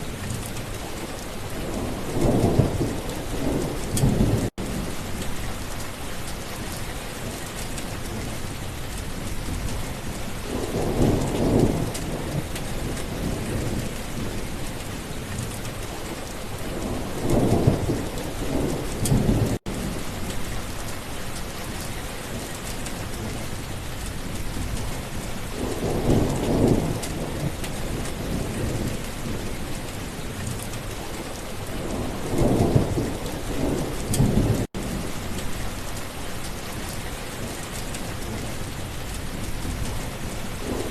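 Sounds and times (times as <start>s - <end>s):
steady rain falling: 0.0s - 40.9s
thunder rumbling: 10.4s - 14.5s, 16.1s - 20.9s, 25.5s - 30.2s, 30.9s - 36.0s, 39.4s - 40.9s.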